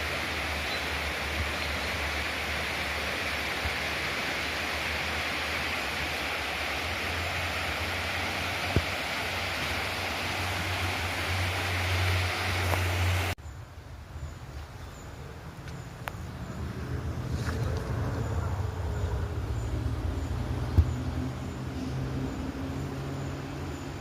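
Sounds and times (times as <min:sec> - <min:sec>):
rushing river water: 0:00.0 - 0:13.4.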